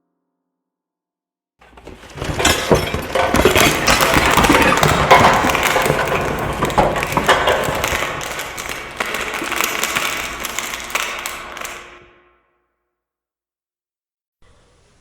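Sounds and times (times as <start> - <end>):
crash of breaking debris: 1.6 - 12.1.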